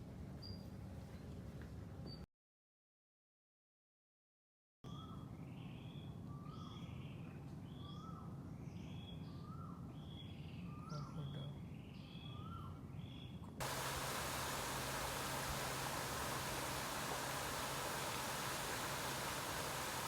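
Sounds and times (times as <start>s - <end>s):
bird calling: 13.6s - 20.0s
low steady hum: 13.6s - 20.0s
steady hiss: 13.6s - 20.0s.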